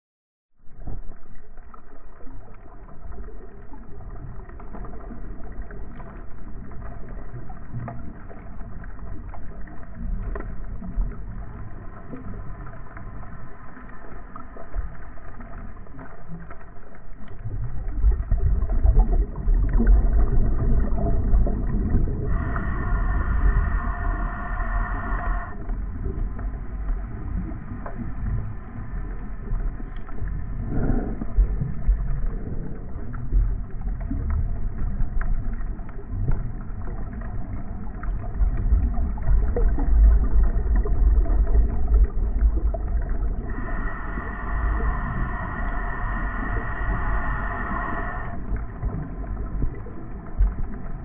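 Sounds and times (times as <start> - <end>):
boat motor humming: 10.7 - 17.2, 20.1 - 33.6, 42.8 - 51.0
high-pitched tone: 11.2 - 16.2, 22.3 - 32.4.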